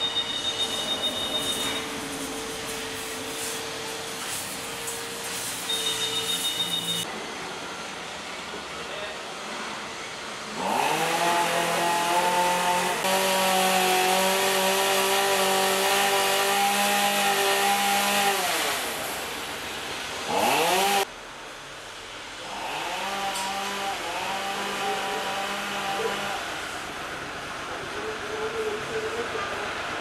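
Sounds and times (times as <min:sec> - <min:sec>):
chainsaw revving: 0:10.5 - 0:19.3, 0:20.2 - 0:21.1, 0:22.4 - 0:26.6.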